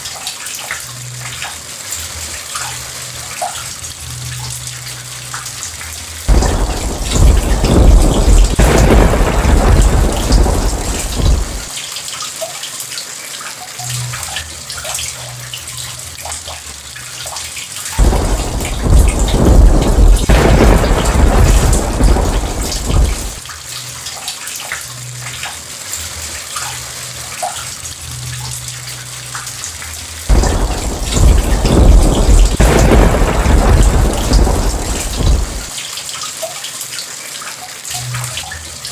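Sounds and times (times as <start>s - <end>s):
steady rain: 0.0s - 38.9s
thunder rumbling: 6.3s - 11.7s, 18.0s - 23.4s, 30.3s - 35.8s.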